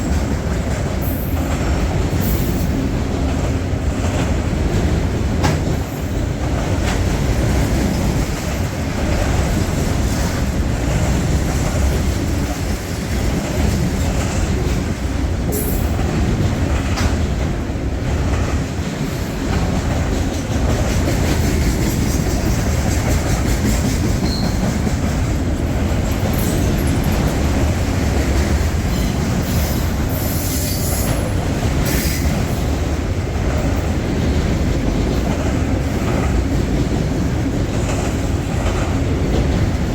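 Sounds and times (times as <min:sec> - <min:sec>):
freight train rumbling past: 0:00.0 - 0:39.9
wheels clicking over rail joints: 0:00.0 - 0:39.9
train wheels squealing: 0:24.2 - 0:24.8, 0:26.3 - 0:27.4, 0:28.9 - 0:32.5.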